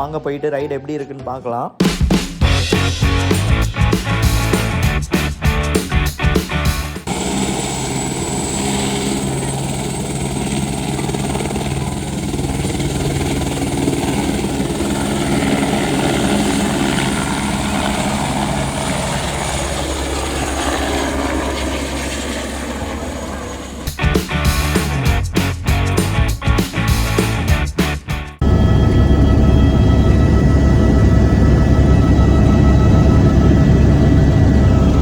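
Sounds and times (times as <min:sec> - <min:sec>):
music: 0:00.0 - 0:07.1, 0:23.9 - 0:35.0
helicopter drone: 0:02.4 - 0:35.0.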